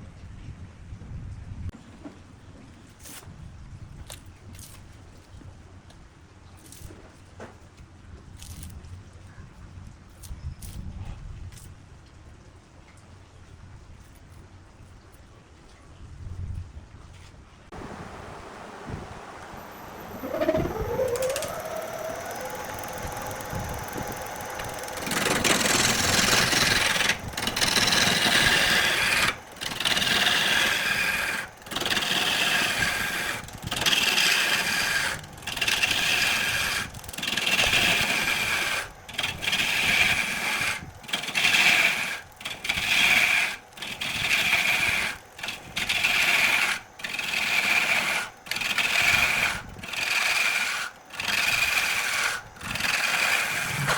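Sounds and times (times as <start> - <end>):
falling tone into steady hum: 17.7 - 31.0, 53.4 - 53.9
lathe tool cutting wood: 17.8 - 53.9.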